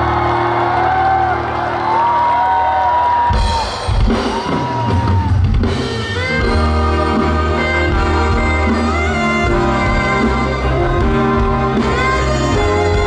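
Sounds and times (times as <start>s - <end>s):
live pop band music: 3.1s - 13.0s
drum kit fill: 3.2s - 13.0s.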